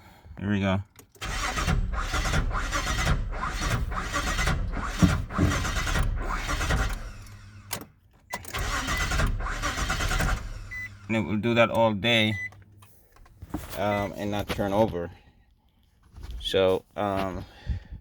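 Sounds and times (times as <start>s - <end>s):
engine cranking without starting: 1.0s - 13.4s.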